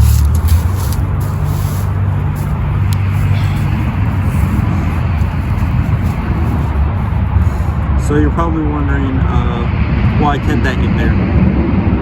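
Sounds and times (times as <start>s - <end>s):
vehicles passing: 0.0s - 12.0s.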